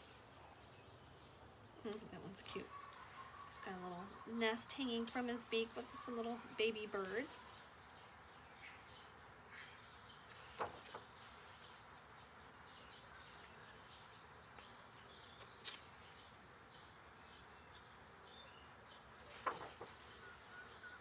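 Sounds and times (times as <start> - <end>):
paper pages rustling: 10.3 - 11.8, 15.4 - 16.3, 19.2 - 20.6.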